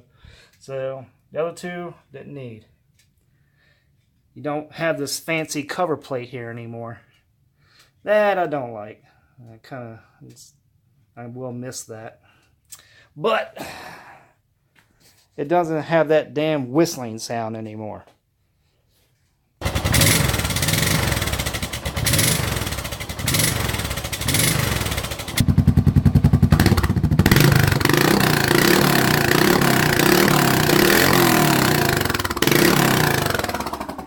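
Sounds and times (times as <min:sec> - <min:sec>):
engine throttle blips: 0:19.6 - 0:34.0
motorcycle engine running loud: 0:19.6 - 0:34.0.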